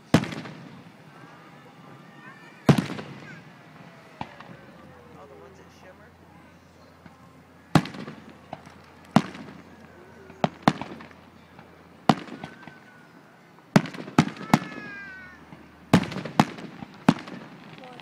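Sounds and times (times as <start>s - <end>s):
firework bangs with rumbling echo: 0.0s - 1.0s, 2.4s - 4.8s, 7.6s - 13.0s, 13.7s - 18.0s.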